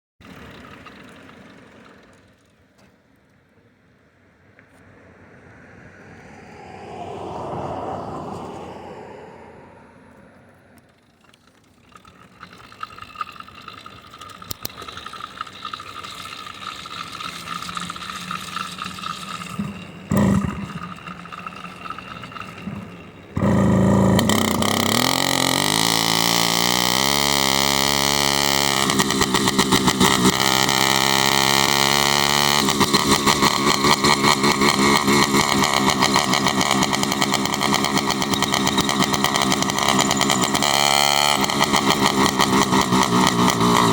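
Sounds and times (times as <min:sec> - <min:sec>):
motorized bicycle engine: 0:00.2 - 0:02.6, 0:10.8 - 0:43.9.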